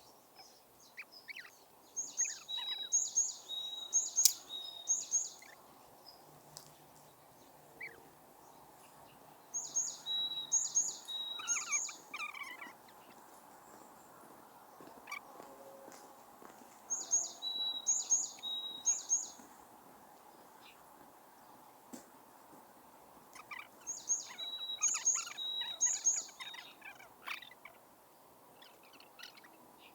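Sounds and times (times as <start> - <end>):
second bird chirping: 0.0 - 5.6, 9.6 - 13.2, 16.9 - 19.4
faint outdoor background noise: 0.0 - 29.9
songbird singing high phrase: 0.9 - 5.6, 9.6 - 12.6, 16.9 - 19.4, 23.9 - 26.8.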